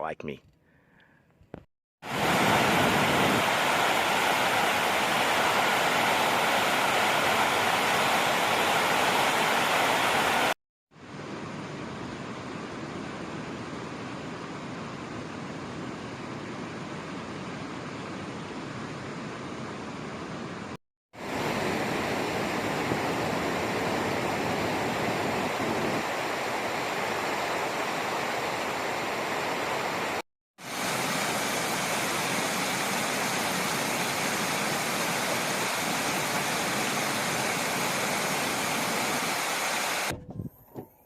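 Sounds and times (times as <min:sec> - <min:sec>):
wind noise: 0:02.1 - 0:06.2, 0:21.6 - 0:26.2, 0:40.1 - 0:40.9.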